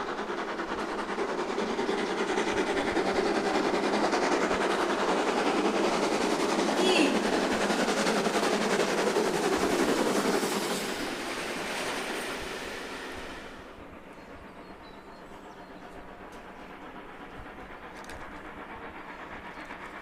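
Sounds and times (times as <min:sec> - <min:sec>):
train clattering past: 0:00.0 - 0:20.0.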